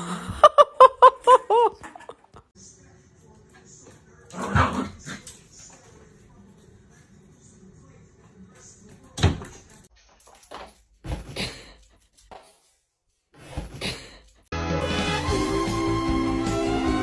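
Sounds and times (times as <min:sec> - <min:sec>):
music: 0:14.5 - 0:17.0.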